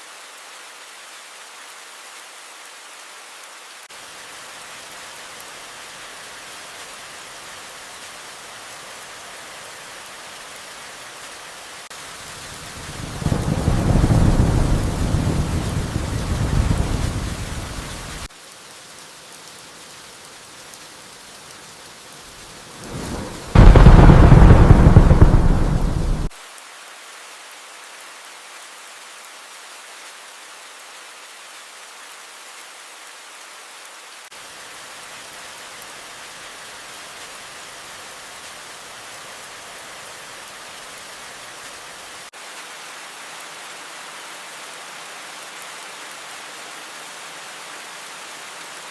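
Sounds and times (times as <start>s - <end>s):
steady rainfall: 0.0s - 48.9s
thunder rolling: 12.9s - 18.3s, 22.8s - 26.3s.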